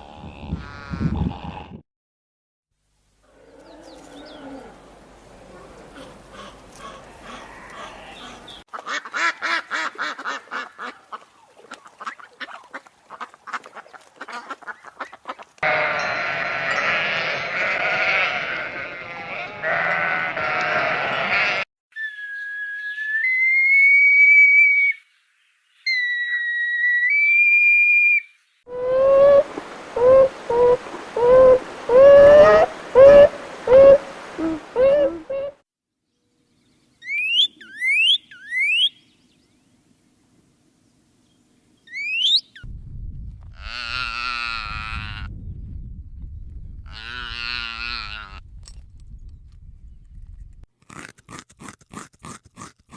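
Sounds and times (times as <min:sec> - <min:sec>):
dense noisy animal calling: 0:28.8 - 0:35.5.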